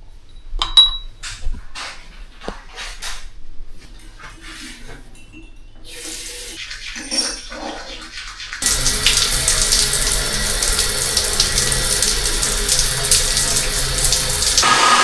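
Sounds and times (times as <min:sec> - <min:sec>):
water running from a tap: 0:05.9 - 0:15.0.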